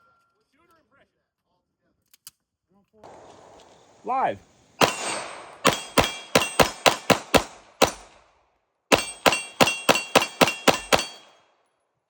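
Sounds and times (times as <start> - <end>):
rapid pistol fire: 3.0 - 8.2, 8.9 - 11.3
metallic ringing of steel targets: 4.8 - 8.1, 8.9 - 11.4.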